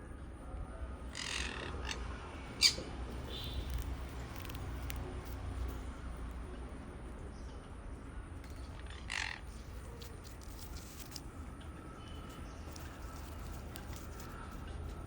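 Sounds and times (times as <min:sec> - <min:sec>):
parrot call: 0:01.1 - 0:03.8.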